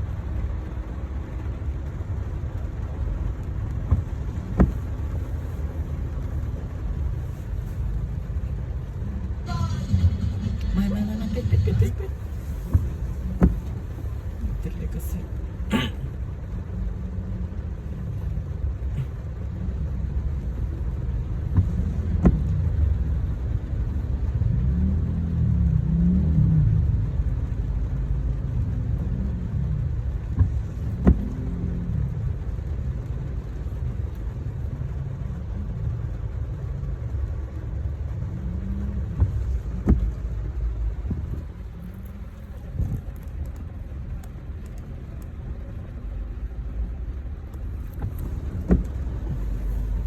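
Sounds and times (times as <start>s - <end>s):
road rumble: 0.0s - 50.0s
car engine revving: 9.1s - 15.2s.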